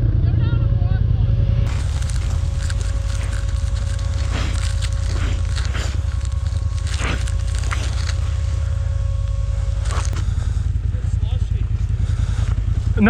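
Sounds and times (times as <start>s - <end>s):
sharp crunches: 1.7s - 10.8s
atv engine idling: 6.0s - 13.0s.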